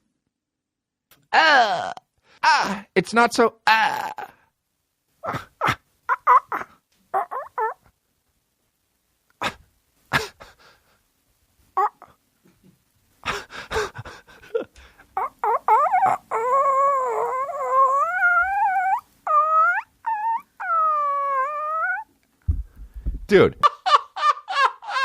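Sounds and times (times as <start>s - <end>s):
man making animal-like wails: 1.3s - 2.9s, 3.6s - 4.4s, 15.2s - 22.1s.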